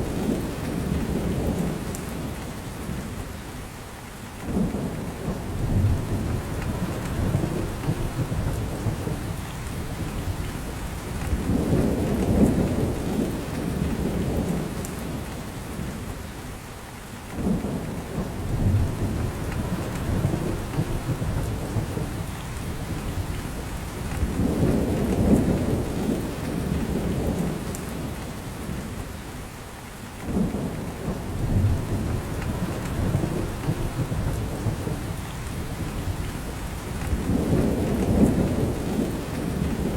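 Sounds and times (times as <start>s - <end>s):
steady rain on forest: 0.0s - 39.9s.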